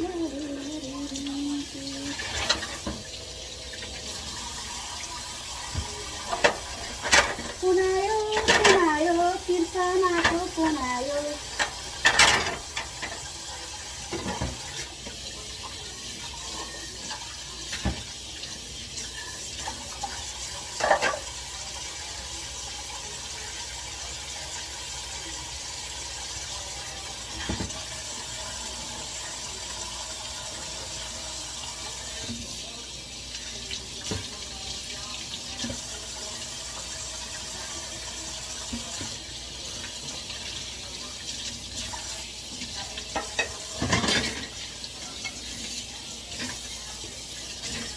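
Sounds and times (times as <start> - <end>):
tap water running into sink: 0.0 - 47.9.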